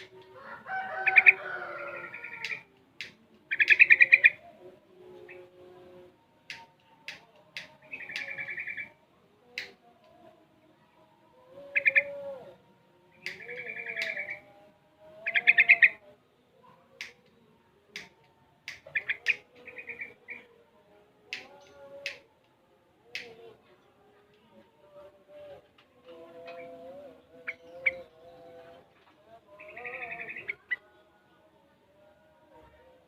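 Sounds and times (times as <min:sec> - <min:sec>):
sharp bird ticking notes: 0:02.4 - 0:04.4, 0:07.9 - 0:08.9, 0:13.2 - 0:14.3, 0:18.7 - 0:20.2.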